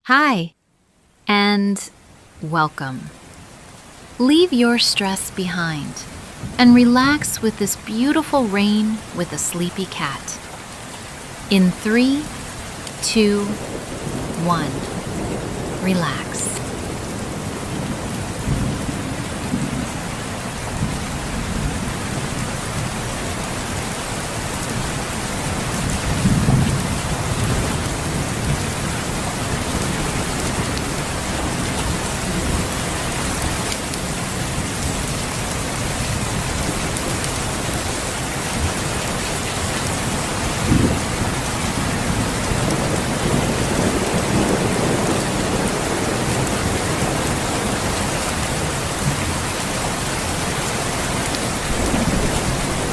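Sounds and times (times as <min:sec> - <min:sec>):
steady rain: 0:00.5 - 0:52.9
thunder rumbling: 0:13.6 - 0:22.9, 0:39.8 - 0:52.9.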